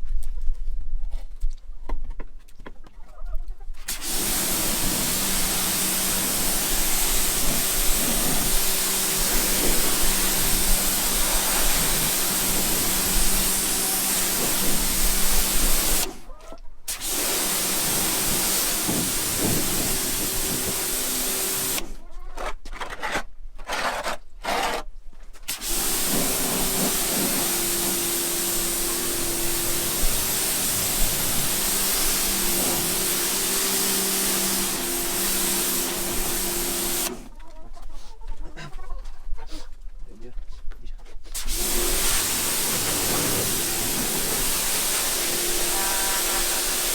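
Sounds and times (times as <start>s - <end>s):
pressure washer motor hum: 3.8s - 16.3s, 16.9s - 22.0s, 25.5s - 37.3s, 41.3s - 46.9s
water spraying hiss: 3.8s - 16.3s, 16.9s - 22.0s, 25.5s - 37.3s, 41.3s - 46.9s.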